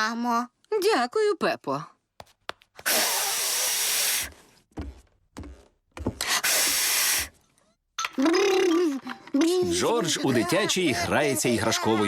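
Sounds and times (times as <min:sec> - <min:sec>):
cartoon piglet blowing breathily: 0:02.8 - 0:04.4, 0:06.3 - 0:07.3.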